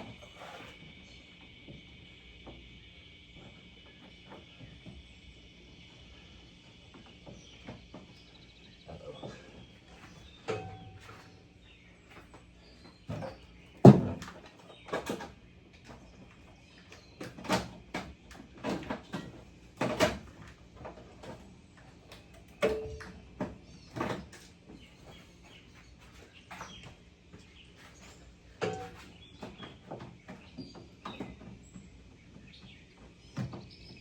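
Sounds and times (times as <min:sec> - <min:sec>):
knocks and clunks of tools: 0:13.1 - 0:15.4, 0:22.2 - 0:24.5, 0:28.6 - 0:31.6.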